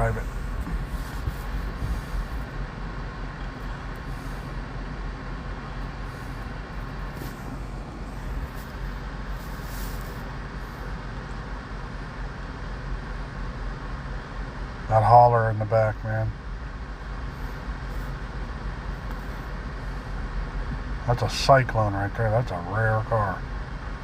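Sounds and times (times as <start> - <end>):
outdoor background noise: 0.0 - 24.0
vehicle engines rumbling: 0.0 - 24.0.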